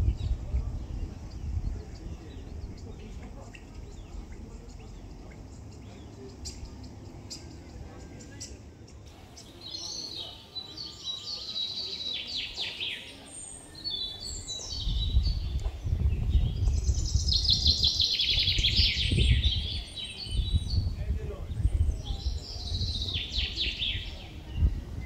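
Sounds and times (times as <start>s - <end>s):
loud uneven low rumble: 0.0s - 5.7s, 14.8s - 23.2s
songbirds trilling: 0.0s - 25.0s.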